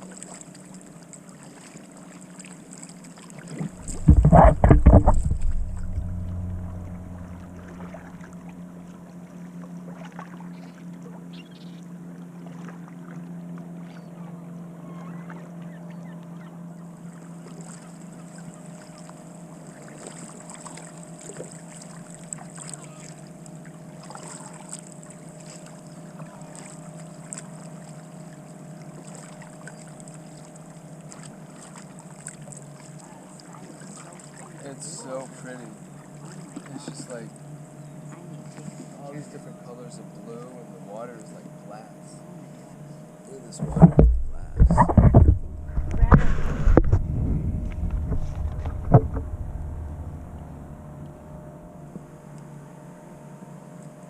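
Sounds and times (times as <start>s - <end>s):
paddle splashes and drips: 0.0s - 11.4s, 12.0s - 14.3s, 17.0s - 37.5s
steady low hum: 3.5s - 9.7s, 34.7s - 54.0s
loud thump: 3.7s - 7.8s, 43.6s - 51.4s.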